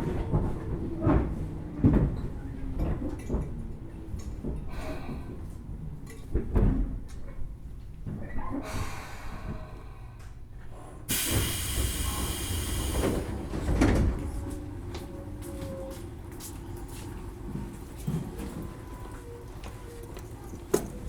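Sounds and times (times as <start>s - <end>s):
train car low rumble: 0.0s - 21.0s
train door pneumatic hiss: 11.1s - 13.7s
train door thuds: 11.1s - 14.5s.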